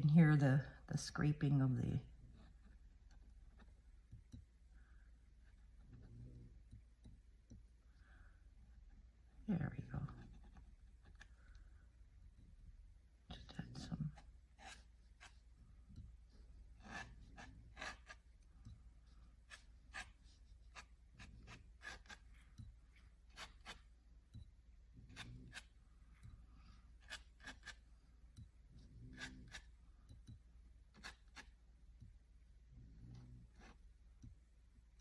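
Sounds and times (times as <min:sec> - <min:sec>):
pen nib scratching on paper: 0:13.7 - 0:15.5, 0:16.8 - 0:18.4, 0:19.1 - 0:23.9, 0:25.0 - 0:25.8, 0:26.9 - 0:27.9, 0:28.8 - 0:29.8, 0:30.9 - 0:31.6, 0:33.1 - 0:33.9.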